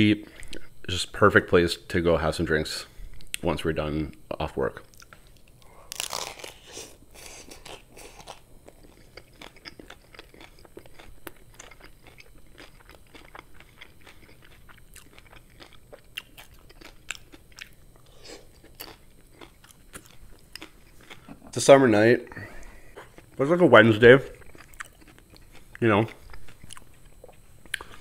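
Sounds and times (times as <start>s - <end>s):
hard taco shell crunching: 4.9s - 21.3s.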